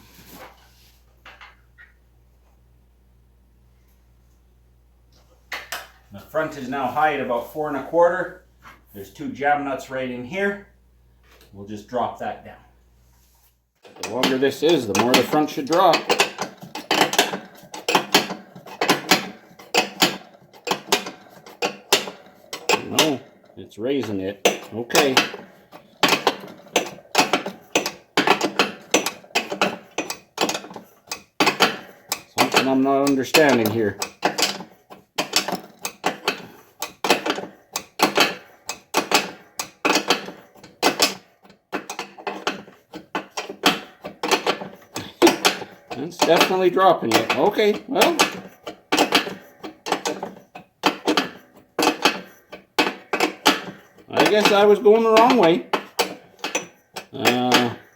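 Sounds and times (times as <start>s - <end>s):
wrench clicking on metal nuts: 13.8s - 57.9s.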